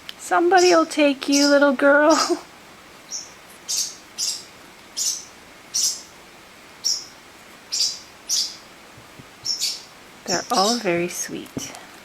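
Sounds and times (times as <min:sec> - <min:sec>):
young birds chirping: 0:00.5 - 0:02.4, 0:03.0 - 0:06.2, 0:06.8 - 0:08.7, 0:09.4 - 0:11.8.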